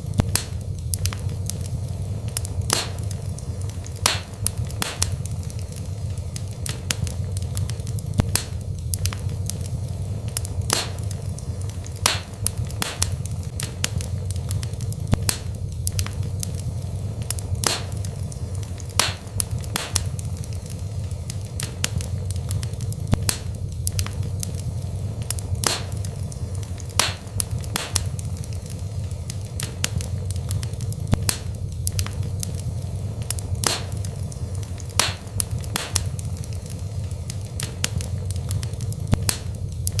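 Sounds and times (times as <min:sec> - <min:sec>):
fire popping: 0:00.0 - 0:40.0
low rumble of flames: 0:00.0 - 0:40.0
wood fire crackling: 0:00.0 - 0:40.0.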